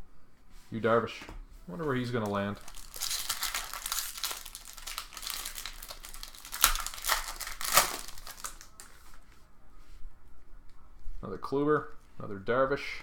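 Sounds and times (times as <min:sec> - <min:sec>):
plastic wrapper crinkling: 0:01.9 - 0:09.2.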